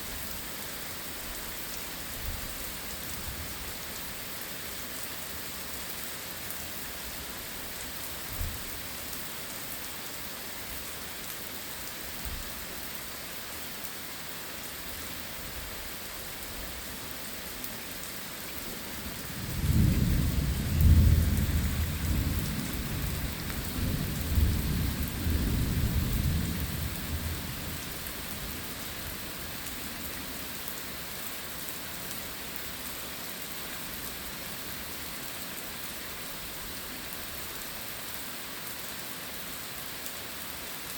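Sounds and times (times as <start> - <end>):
heavy rain: 0.0 - 40.9
rolling thunder rumble: 19.3 - 27.8.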